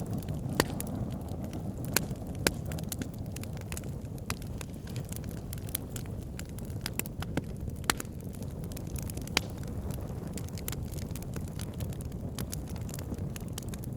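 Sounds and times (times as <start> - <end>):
campfire crackling: 0.0 - 13.9
sharp pops: 0.5 - 1.0.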